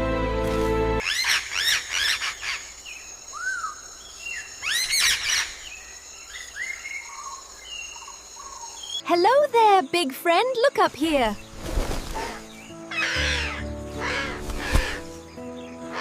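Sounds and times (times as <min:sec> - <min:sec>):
music: 0:00.0 - 0:01.0, 0:09.0 - 0:16.0
bird chirping: 0:01.0 - 0:16.0.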